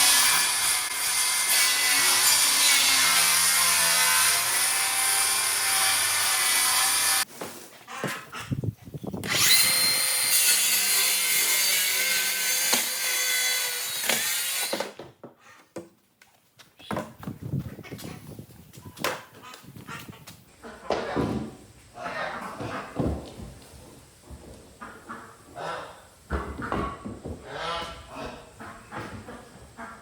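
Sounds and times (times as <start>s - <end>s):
power saw cutting wood: 0.0s - 7.3s, 9.2s - 15.0s.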